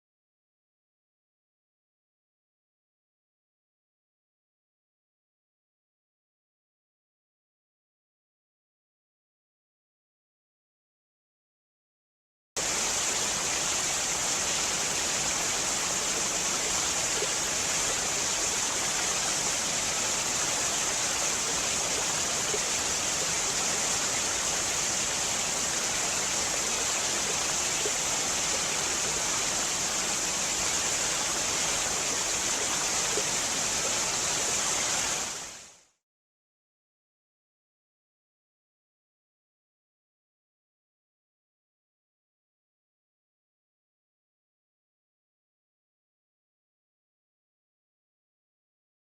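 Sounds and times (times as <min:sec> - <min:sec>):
steady rushing hiss: 0:12.6 - 0:35.8.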